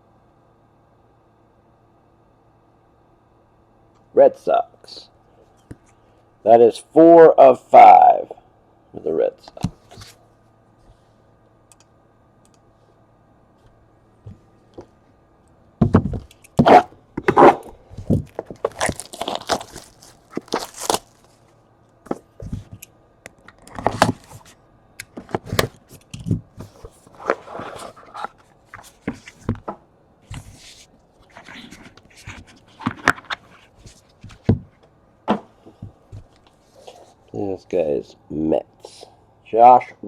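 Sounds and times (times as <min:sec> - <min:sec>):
cards being handled: 0:16.2 - 0:21.5, 0:23.5 - 0:29.7, 0:30.3 - 0:34.7
packaging crinkling and tearing: 0:17.4 - 0:21.5.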